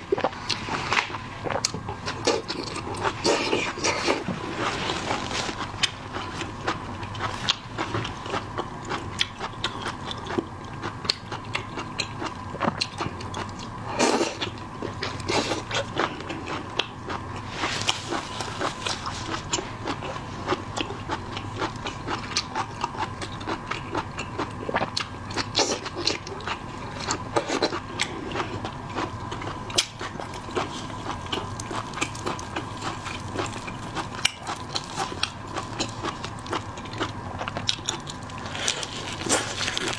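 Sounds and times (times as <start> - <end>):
person biting and chewing food: 27.4 - 39.9
crisp clicks and wet smacks: 29.0 - 39.9.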